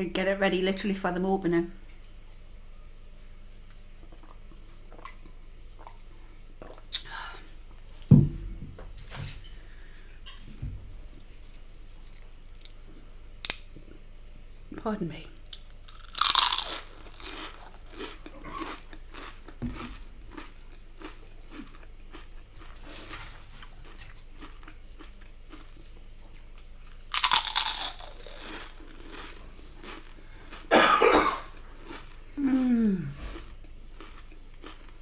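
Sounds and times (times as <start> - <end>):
crunching bites: 15.5 - 22.7, 26.8 - 30.6.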